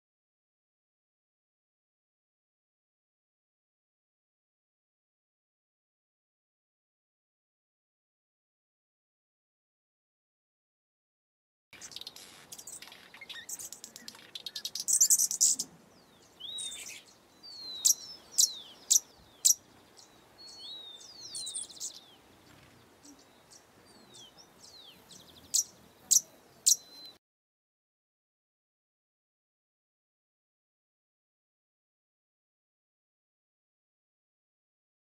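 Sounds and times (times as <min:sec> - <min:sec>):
small birds calling: 0:11.8 - 0:27.2.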